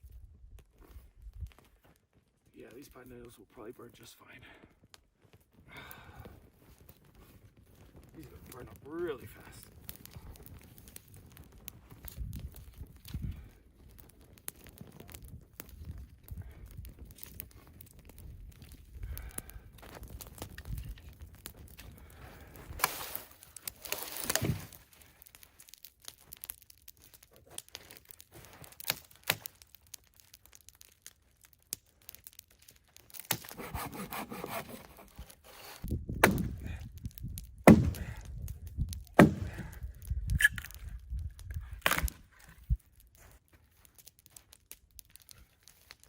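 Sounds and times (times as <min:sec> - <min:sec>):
dry sticks snapping: 0:09.8 - 0:46.0
rustling: 0:20.5 - 0:30.8
loud thumps: 0:36.1 - 0:36.7, 0:37.7 - 0:38.2, 0:39.2 - 0:39.8.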